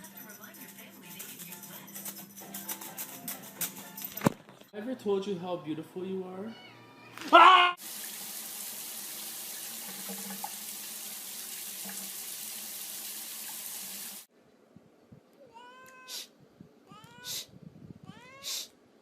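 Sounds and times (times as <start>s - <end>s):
cat meowing: 6.5s - 7.8s, 15.4s - 18.7s
running water: 7.8s - 14.3s
sharp hissing bursts: 18.4s - 18.7s.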